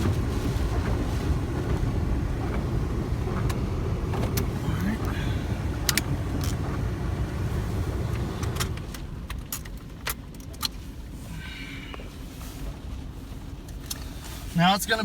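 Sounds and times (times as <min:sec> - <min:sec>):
car road rumble: 0:00.0 - 0:15.0.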